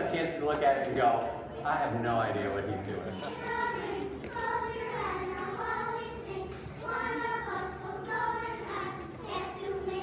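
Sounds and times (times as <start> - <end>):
children singing together: 3.1 - 10.0.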